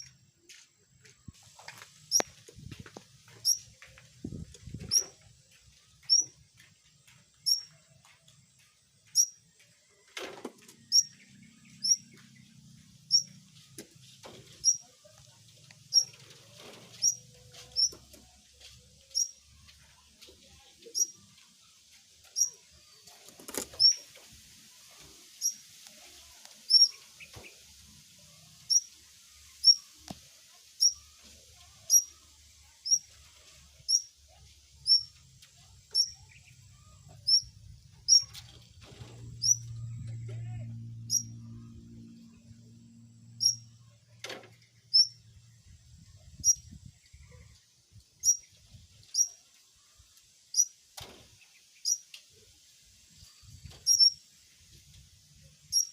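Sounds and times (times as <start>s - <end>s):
small bird chirping: 0.0s - 9.8s, 10.6s - 50.8s, 51.4s - 55.9s
low hum: 36.2s - 47.0s.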